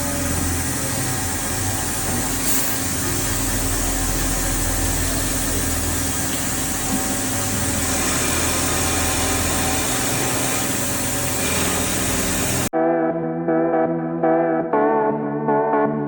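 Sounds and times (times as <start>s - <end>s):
wood lathe running: 0.0s - 12.7s.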